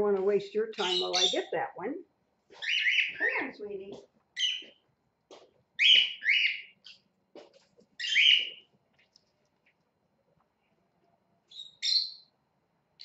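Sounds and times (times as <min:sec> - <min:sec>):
cockatiel chirping: 0:00.8 - 0:01.5, 0:02.6 - 0:03.5, 0:04.4 - 0:04.8, 0:05.8 - 0:07.0, 0:08.0 - 0:08.6, 0:11.5 - 0:12.3.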